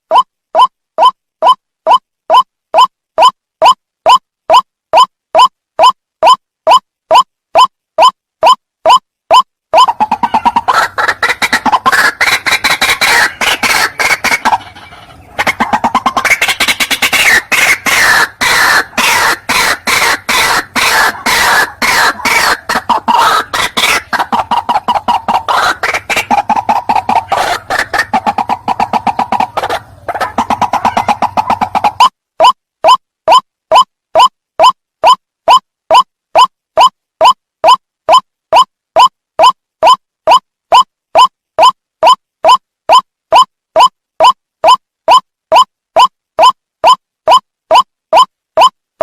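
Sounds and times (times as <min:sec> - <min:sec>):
waterhen calling harshly: 0:09.8 - 0:32.1.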